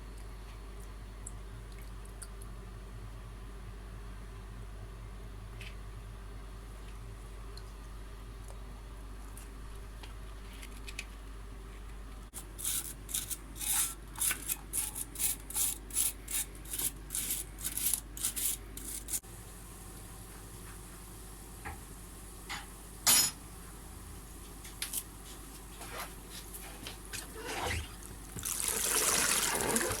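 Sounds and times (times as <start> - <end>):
brush scrubbing metal: 12.6 - 19.2.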